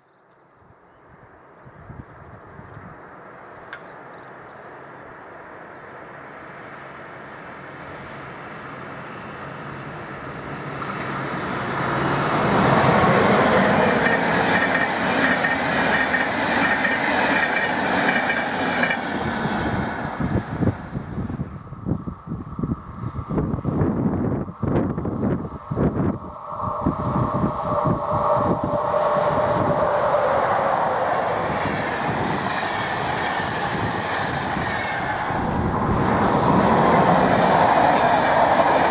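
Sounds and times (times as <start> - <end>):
train passing on rails: 1.3 - 38.9
wheels clattering on rail joints: 13.5 - 19.2.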